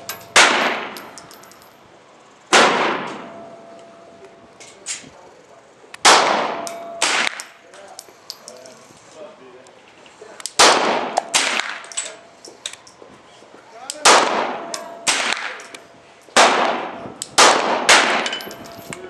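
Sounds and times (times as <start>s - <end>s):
pistol shots echoing: 0.3s - 1.0s, 2.5s - 3.4s, 6.0s - 7.5s, 10.5s - 12.2s, 14.0s - 15.7s, 16.4s - 18.5s.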